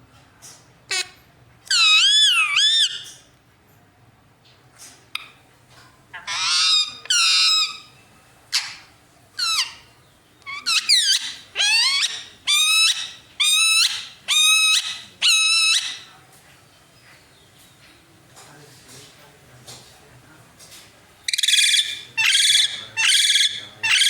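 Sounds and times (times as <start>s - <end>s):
parakeet calling: 0.9s - 3.1s, 6.1s - 16.1s, 21.3s - 24.0s.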